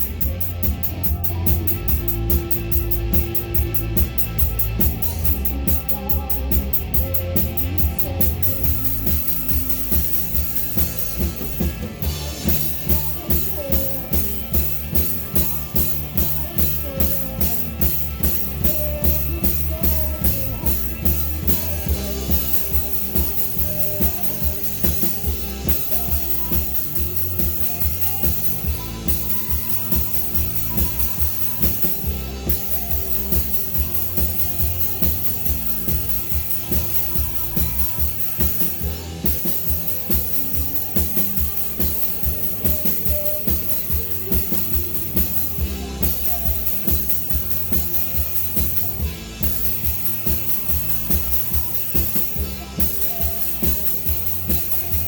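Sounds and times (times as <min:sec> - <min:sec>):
bass drum and snare beat: 0:00.0 - 0:55.0
live rock band playing: 0:00.0 - 0:55.0.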